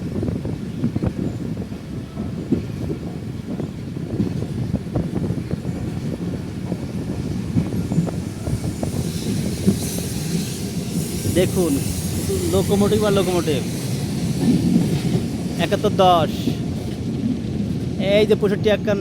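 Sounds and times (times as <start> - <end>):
train knocks and rattles: 0.0 - 19.0
train rumbling on track: 0.0 - 19.0
hiss: 8.4 - 14.6.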